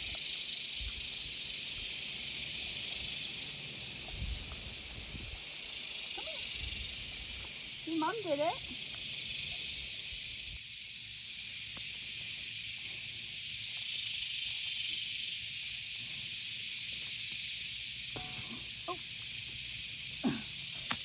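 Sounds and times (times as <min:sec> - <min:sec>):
cicadas chorus: 0:00.0 - 0:21.0.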